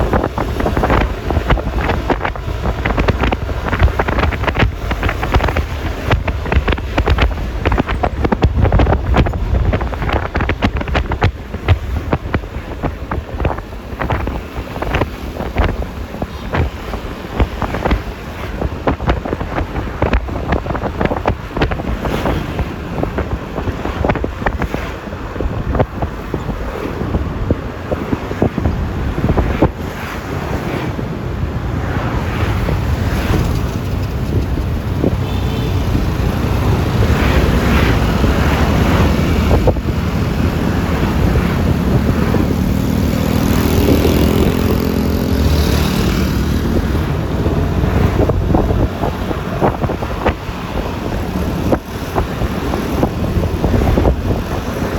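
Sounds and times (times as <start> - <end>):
road and traffic noise: 0.0 - 54.9
wind buffeting microphone: 0.0 - 54.9.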